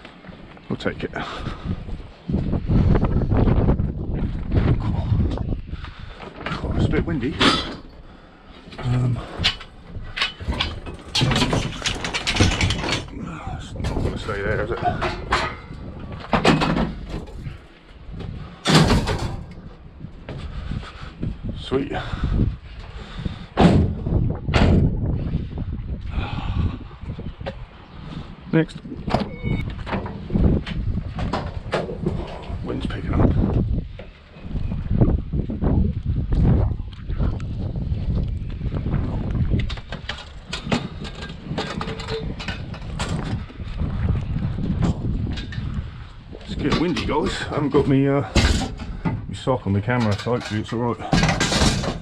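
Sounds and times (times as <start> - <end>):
wind rumbling on microphone: 0.0 - 52.0
sharp clicks and knocks: 8.7 - 13.2, 18.6 - 19.7
scrap metal clattering: 8.8 - 15.8, 18.6 - 19.7, 50.0 - 52.0
loud metallic crashes: 18.6 - 19.6.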